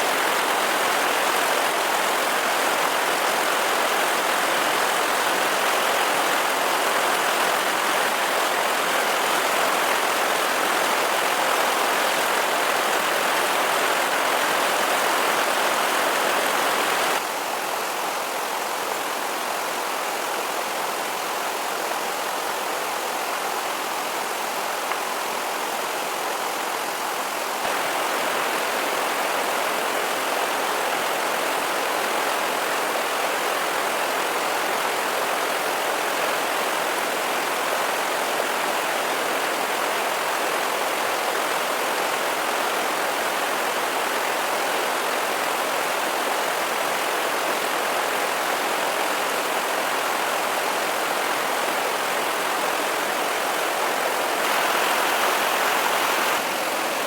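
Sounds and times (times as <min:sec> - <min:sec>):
steady rushing noise: 0:54.4 - 0:57.0.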